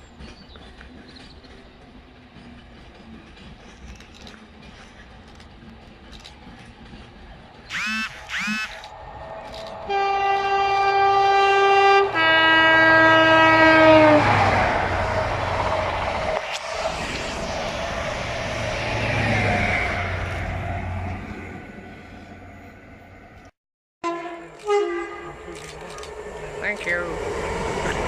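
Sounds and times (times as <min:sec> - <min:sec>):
train roar passing: 0:05.8 - 0:23.5, 0:24.1 - 0:28.0
train two-tone horn: 0:09.9 - 0:14.5, 0:24.0 - 0:25.4.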